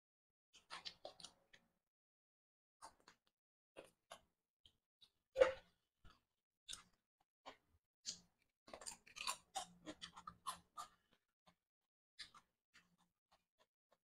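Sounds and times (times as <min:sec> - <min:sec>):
crisp crunches of cucumber: 0:08.7 - 0:10.9.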